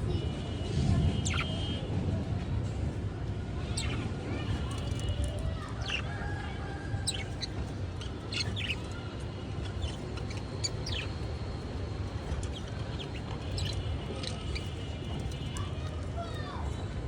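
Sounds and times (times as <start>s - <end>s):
budgerigars chirping: 1.3s - 1.5s, 7.1s - 9.0s, 9.6s - 11.2s, 12.3s - 15.6s
steady low hum: 5.5s - 17.0s.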